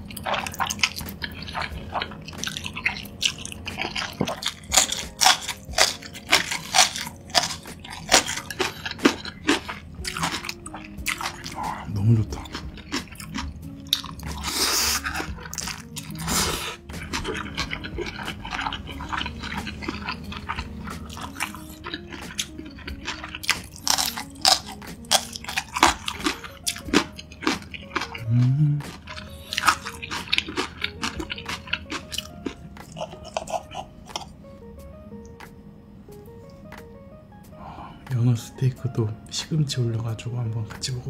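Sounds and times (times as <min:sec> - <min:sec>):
wet chewing: 0:00.0 - 0:34.4
quiet background music: 0:00.0 - 0:41.0
crisp crunches and clicks: 0:02.3 - 0:18.7
noodle slurp: 0:14.3 - 0:20.1.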